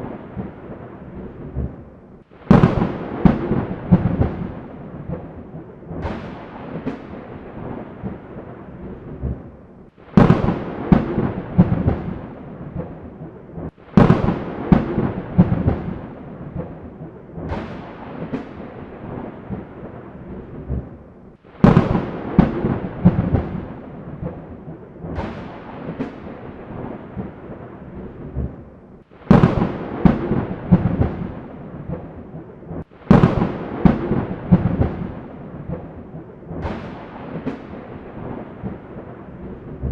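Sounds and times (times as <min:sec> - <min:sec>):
steady rain: 0:00.0 - 0:39.9
thunder cracks and rumbles: 0:00.0 - 0:39.9.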